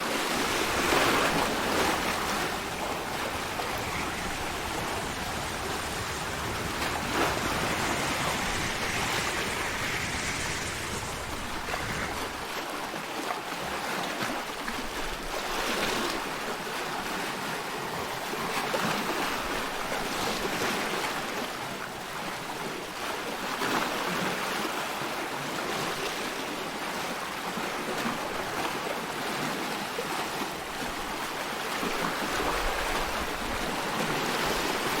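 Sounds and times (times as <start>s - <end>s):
sea surf washing: 0.0s - 13.3s
low rumble: 0.4s - 12.6s.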